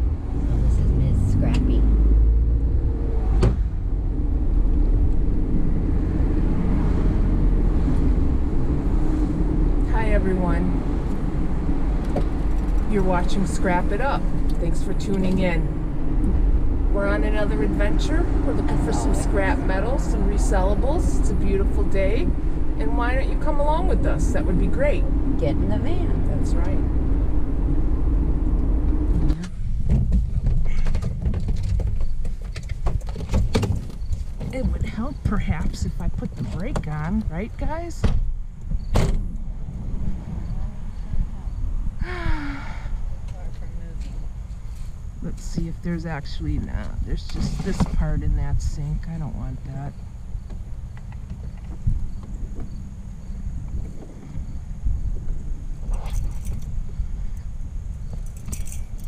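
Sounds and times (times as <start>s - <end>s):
vehicle engine rumble: 0.0s - 59.0s
scattered clicks and knocks: 12.0s - 12.9s, 29.3s - 37.3s.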